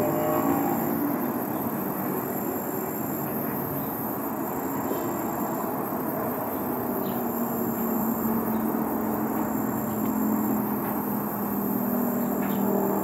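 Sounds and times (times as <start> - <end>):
low engine tone: 0.0 - 2.0
jet engine roar: 0.0 - 2.5.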